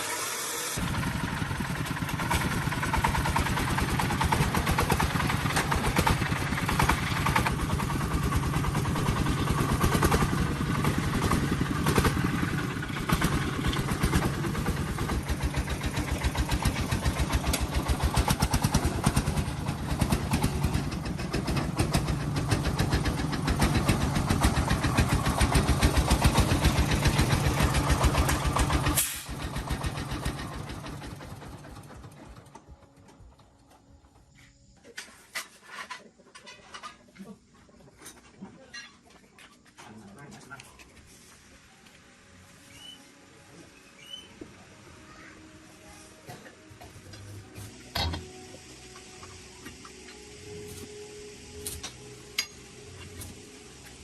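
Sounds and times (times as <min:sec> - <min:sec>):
engine running steadily: 0:00.0 - 0:33.8.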